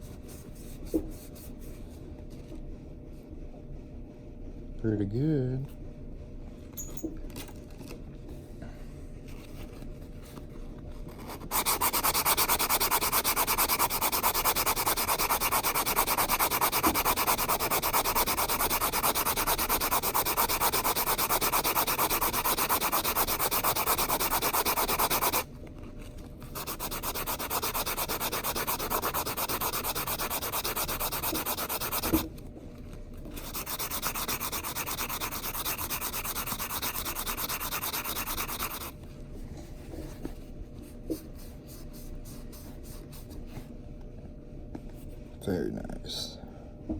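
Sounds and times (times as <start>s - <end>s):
file scraping metal ring: 26.6s - 32.2s, 33.4s - 38.9s.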